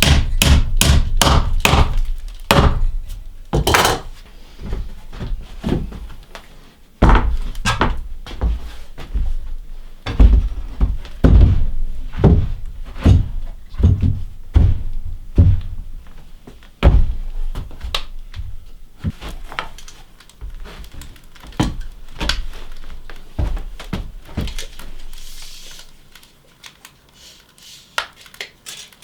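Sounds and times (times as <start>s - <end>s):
heavy wooden thuds: 7.0s - 19.4s, 20.4s - 25.0s.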